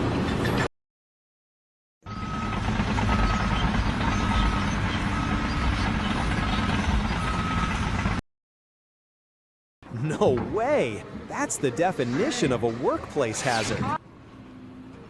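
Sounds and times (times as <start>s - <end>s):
reversing alarm beeping: 2.0s - 8.0s
diesel engine rumble: 2.1s - 8.2s, 9.8s - 15.0s.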